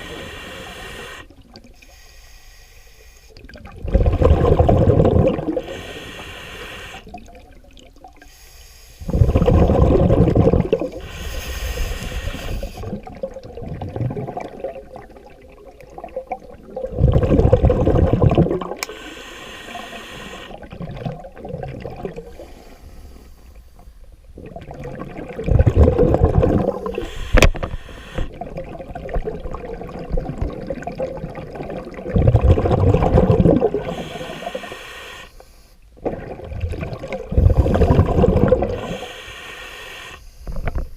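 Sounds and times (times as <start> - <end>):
regulator inhale hiss: 0.0 - 3.4, 5.6 - 7.1, 8.2 - 9.2, 10.8 - 13.0, 18.8 - 20.6, 22.2 - 24.0, 26.7 - 28.4, 33.8 - 35.9, 38.7 - 40.9
bubbling diver exhalations: 3.8 - 6.2, 9.0 - 15.1, 16.0 - 19.0, 24.4 - 34.8, 36.0 - 39.2.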